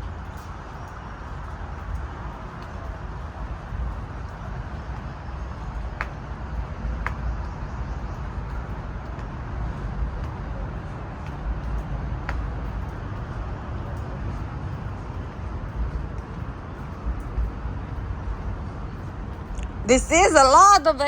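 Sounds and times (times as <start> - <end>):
road traffic hiss and rumble: 0.0 - 21.0.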